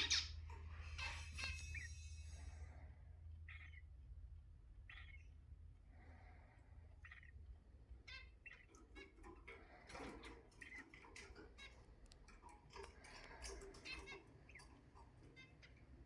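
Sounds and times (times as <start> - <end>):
cockatiel chirps: 1.0 - 2.5, 4.9 - 5.3
faint clicking and tapping: 7.2 - 16.0.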